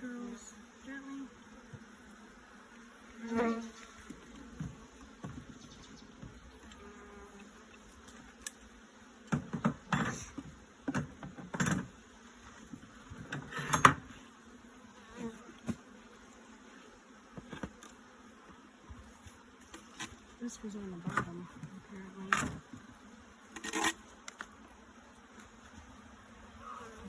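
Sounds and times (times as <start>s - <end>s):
bees buzzing: 0.0s - 27.0s
wooden hive parts knocking: 9.3s - 11.9s.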